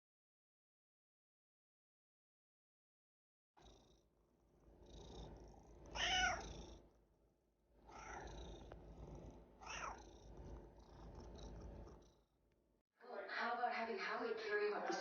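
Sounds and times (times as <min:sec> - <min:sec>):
cat purring: 0:03.6 - 0:07.1, 0:07.8 - 0:12.6
cat meowing: 0:05.9 - 0:06.7, 0:07.9 - 0:08.4, 0:09.6 - 0:10.1.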